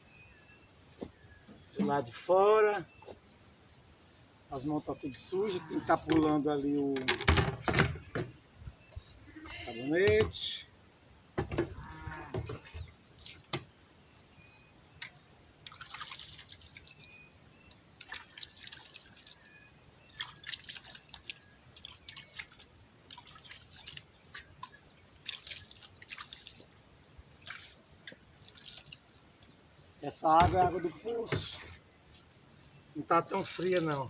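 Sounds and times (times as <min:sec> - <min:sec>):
water splashing and dripping: 0:11.8 - 0:13.7, 0:15.0 - 0:29.2, 0:33.0 - 0:34.0.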